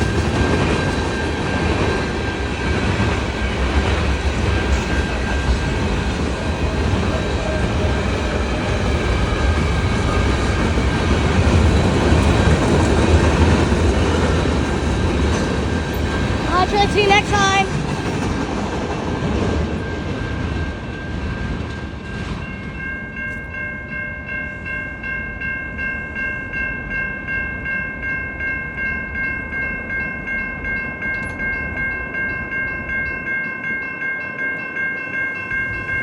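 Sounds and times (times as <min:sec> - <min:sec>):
freight train rumbling by: 0:00.0 - 0:36.0
high pulsing ringing tones: 0:19.8 - 0:36.0.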